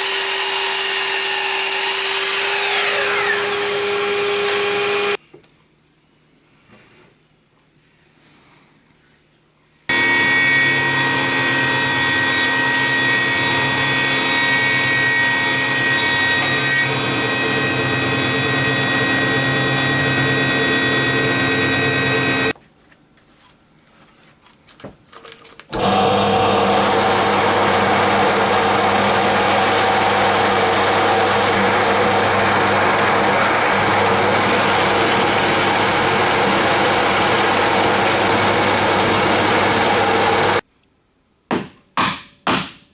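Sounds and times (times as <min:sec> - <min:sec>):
table saw cutting wood: 0:00.0 - 0:05.2, 0:09.9 - 0:22.6, 0:25.8 - 0:40.6.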